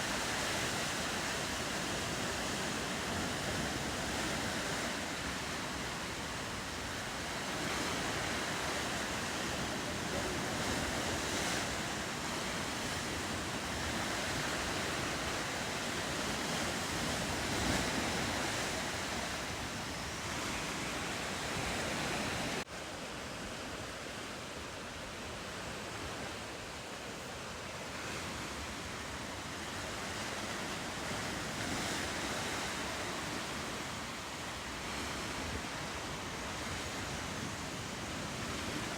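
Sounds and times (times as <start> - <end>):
ocean waves and surf: 0.0 - 38.9
wind: 0.0 - 38.9.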